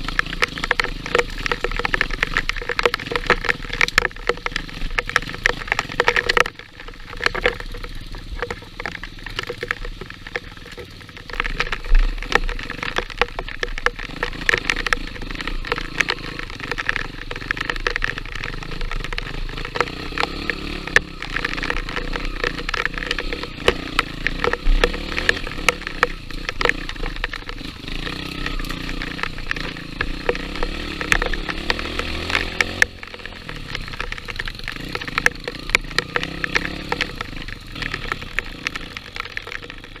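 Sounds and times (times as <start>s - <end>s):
sharp cracks and knocks: 0.0s - 40.0s
small engine running: 18.5s - 39.8s.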